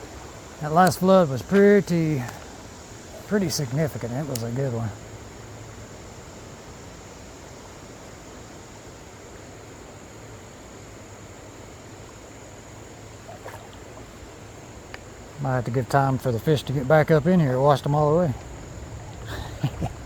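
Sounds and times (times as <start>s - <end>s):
creek water running: 0.0s - 20.0s
high insect drone: 0.0s - 20.0s.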